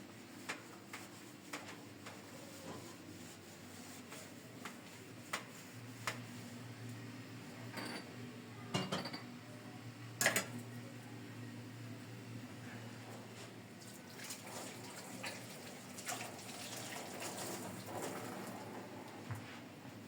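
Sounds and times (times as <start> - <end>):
dishes and cutlery clinking: 7.7 - 9.3.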